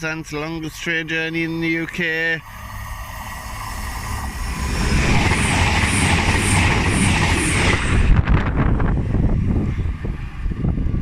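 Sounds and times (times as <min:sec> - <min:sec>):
passenger train passing: 0:00.0 - 0:11.0
sharp air rushes: 0:02.4 - 0:11.0.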